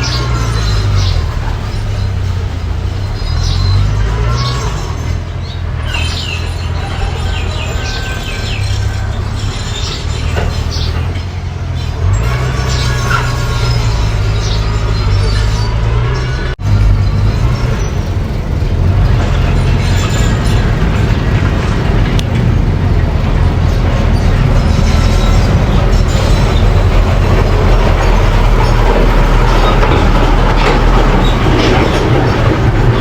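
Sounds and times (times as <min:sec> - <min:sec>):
bulldozer diesel engine running: 0:00.0 - 0:33.0
mechanical clatter: 0:16.7 - 0:33.0.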